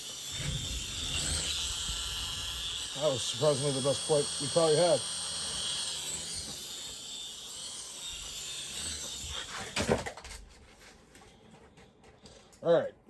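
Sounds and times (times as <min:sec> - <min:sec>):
toy helicopter rotors whirring: 0:00.0 - 0:09.7.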